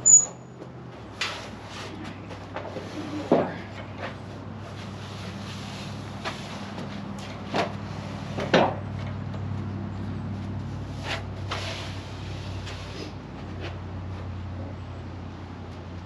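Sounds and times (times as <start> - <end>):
engine idling hum: 0.0 - 16.0
wooden boards clattering: 2.3 - 4.2, 7.2 - 9.0.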